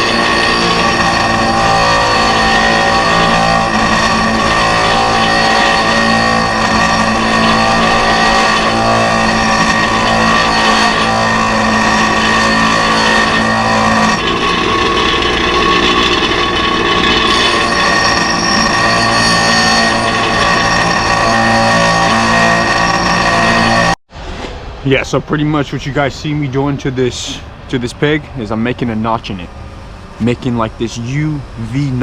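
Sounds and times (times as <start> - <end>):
power tool cutting metal: 0.0 - 24.0.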